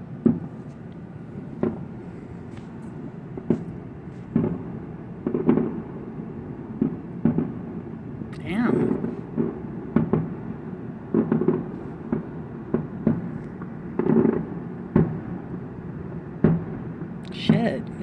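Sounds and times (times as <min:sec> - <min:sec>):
firework shells bursting: 0:11.1 - 0:15.2.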